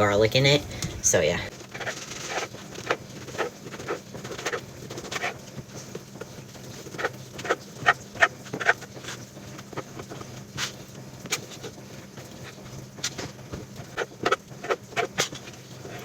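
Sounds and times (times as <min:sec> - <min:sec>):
low steady hum: 0:00.0 - 0:01.6.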